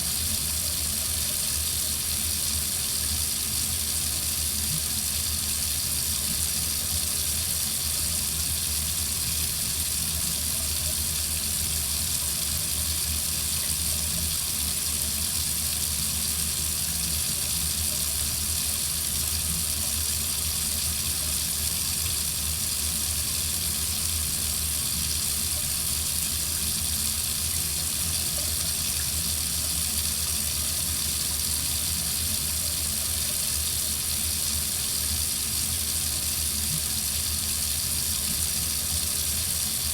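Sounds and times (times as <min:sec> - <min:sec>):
faucet running into sink: 0:00.0 - 0:39.9.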